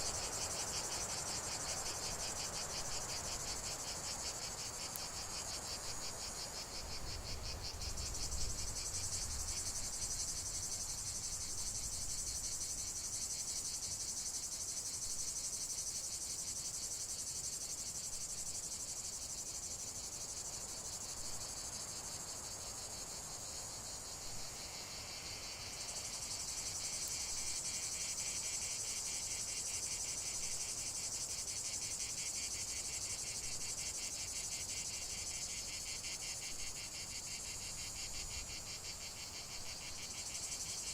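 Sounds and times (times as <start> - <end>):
crickets trilling: 0.0 - 40.9.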